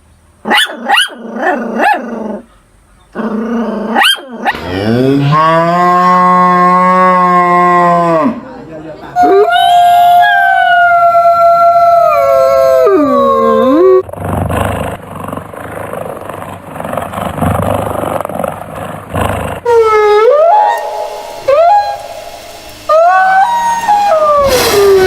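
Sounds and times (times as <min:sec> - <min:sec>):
dog howling: 0:09.2 - 0:14.0, 0:19.7 - 0:25.0.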